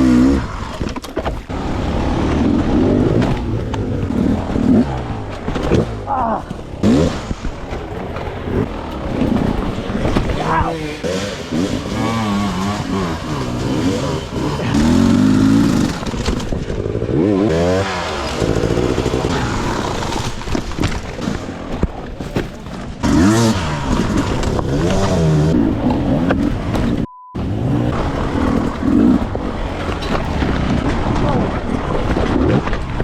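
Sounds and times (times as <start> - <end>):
dirt bike engine revving: 0.0 - 33.0
short steady beep: 27.0 - 27.4.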